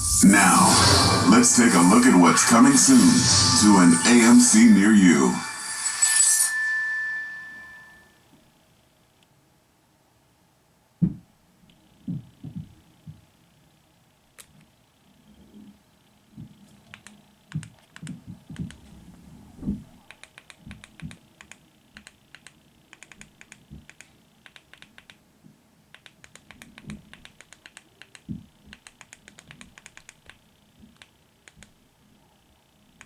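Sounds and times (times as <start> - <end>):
keyboard key clicks: 20.1 - 25.2, 25.9 - 30.4.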